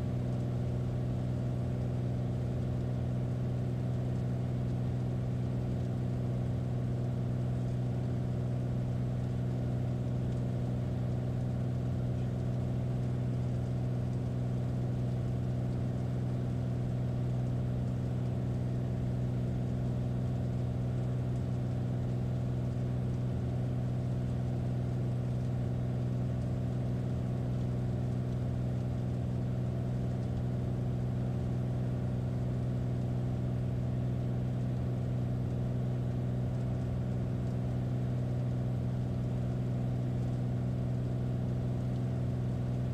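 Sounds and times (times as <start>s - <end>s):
light airplane engine droning: 0.0s - 42.9s.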